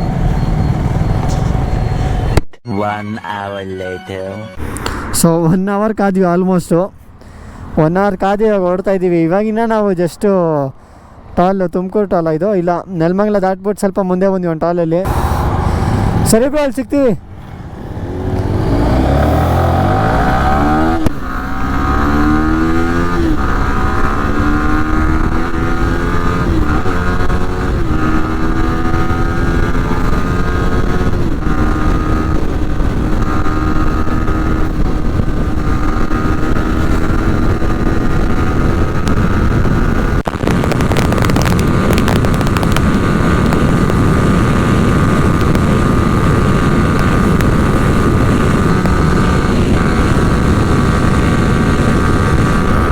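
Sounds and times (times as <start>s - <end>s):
motorcycle engine accelerating: 0.0s - 2.4s, 15.0s - 52.9s
wind noise on microphone: 17.2s - 52.9s.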